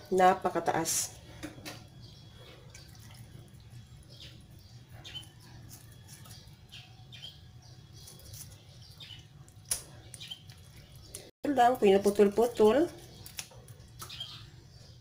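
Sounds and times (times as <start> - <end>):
wet squelching of meat: 2.4 - 3.9.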